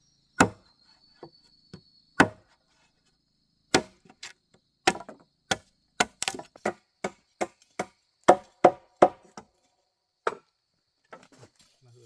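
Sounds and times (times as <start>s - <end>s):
wood being chopped: 0.4s - 0.6s, 2.2s - 2.4s, 3.7s - 9.5s, 10.2s - 10.5s.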